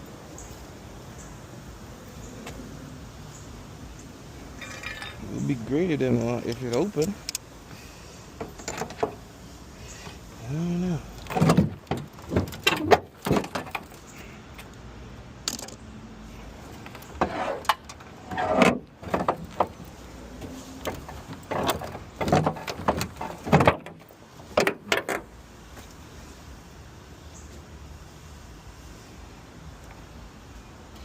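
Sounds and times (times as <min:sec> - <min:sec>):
metal clanks and rattles: 0:04.6 - 0:05.5, 0:08.4 - 0:09.2, 0:11.2 - 0:14.1, 0:16.8 - 0:25.3.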